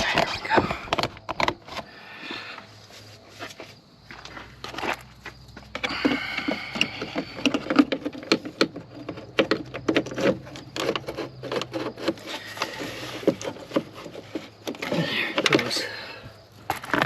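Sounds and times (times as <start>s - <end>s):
plastic parts clicking and knocking: 0.0s - 1.9s, 5.6s - 15.9s
rustling scrapes: 2.6s - 15.8s.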